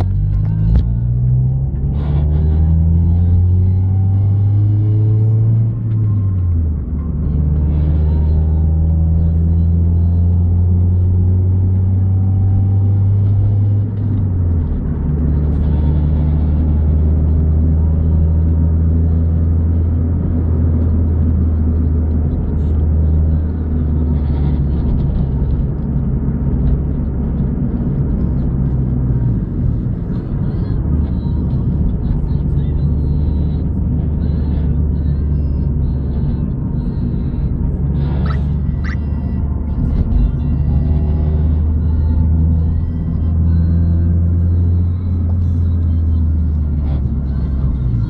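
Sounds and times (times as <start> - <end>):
car engine drone from cabin: 0.0 - 48.0.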